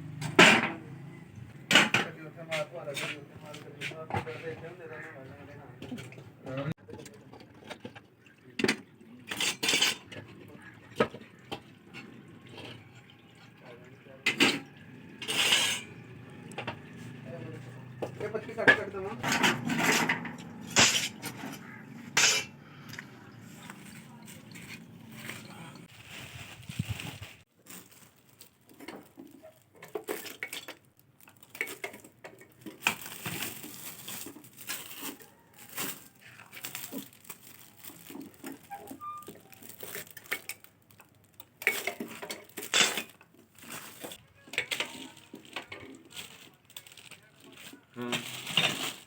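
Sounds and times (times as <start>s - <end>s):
metal scraping on metal: 14.3s - 16.1s, 16.9s - 22.7s
hard objects clinking: 17.6s - 22.6s, 27.7s - 49.0s.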